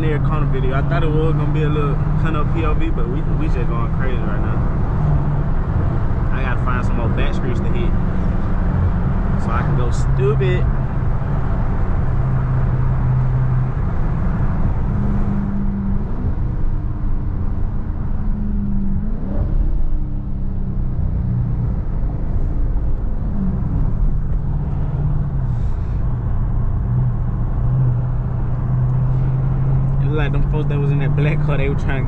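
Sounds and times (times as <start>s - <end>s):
car engine under throttle: 0.0s - 32.0s
road and tyre noise: 0.0s - 32.0s.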